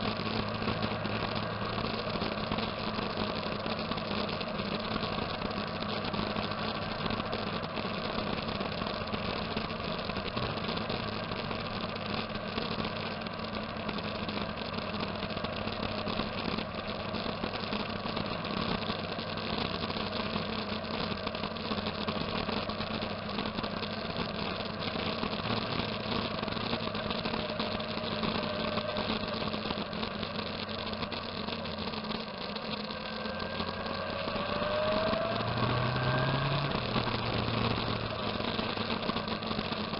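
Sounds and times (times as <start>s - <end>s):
motorcycle engines idling: 0.0s - 39.9s
engine revving: 24.9s - 39.9s.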